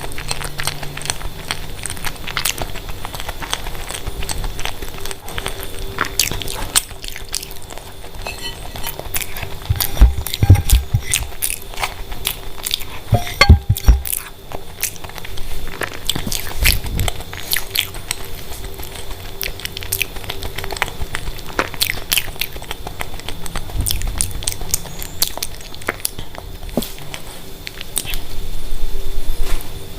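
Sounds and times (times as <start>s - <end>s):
person chewing: 0.0s - 28.4s
faint steady hum: 0.0s - 29.9s
heavier low bumps: 9.6s - 11.4s.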